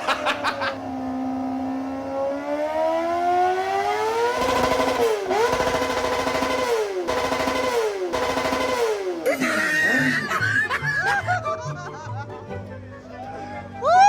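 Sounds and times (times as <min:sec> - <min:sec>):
motorcycle engine revving: 0:00.0 - 0:09.4
exhaust cracks: 0:04.3 - 0:09.4.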